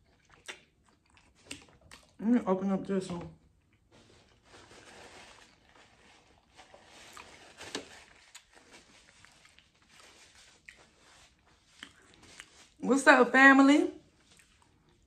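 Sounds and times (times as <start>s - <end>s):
person chewing: 0.0s - 2.2s, 6.3s - 12.8s, 14.1s - 15.0s.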